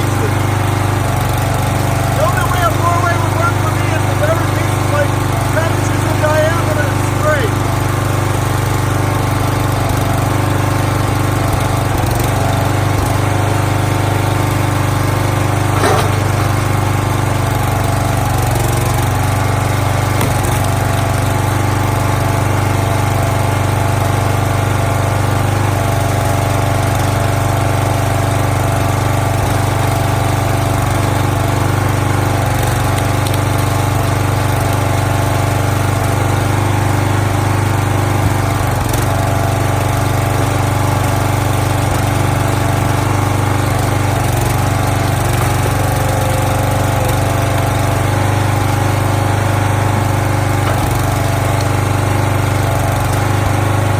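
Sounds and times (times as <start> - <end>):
small gasoline engine running: 0.0 - 53.9.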